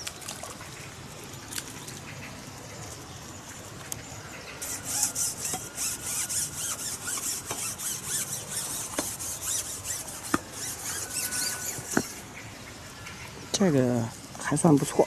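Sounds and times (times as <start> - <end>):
insect rasping in fast pulses: 4.6 - 12.3.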